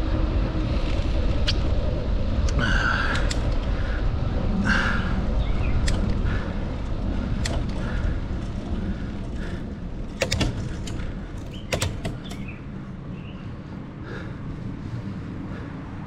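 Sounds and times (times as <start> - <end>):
bicycle rolling on pavement: 0.0 - 11.7, 12.4 - 16.0
wind rushing over microphone: 0.0 - 16.0
sharp clicks and rattles: 5.8 - 12.8.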